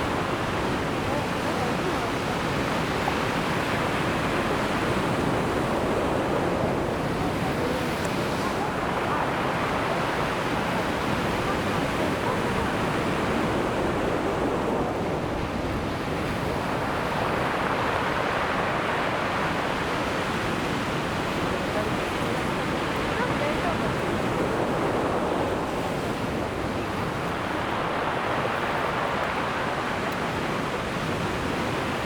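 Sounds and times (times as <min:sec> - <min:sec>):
ocean waves breaking on beach: 0:00.0 - 0:32.0.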